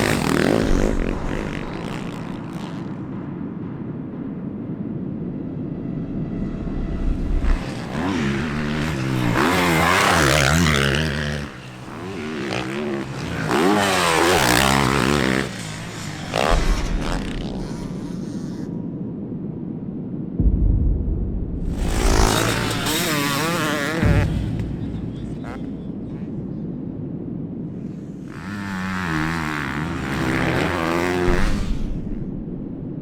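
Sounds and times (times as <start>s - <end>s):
motocross bikes revving past: 0.0s - 3.0s, 7.4s - 18.7s, 21.8s - 26.3s, 27.9s - 32.2s
distant bike engines: 0.0s - 3.3s, 7.1s - 18.7s, 21.8s - 26.7s, 27.8s - 32.2s.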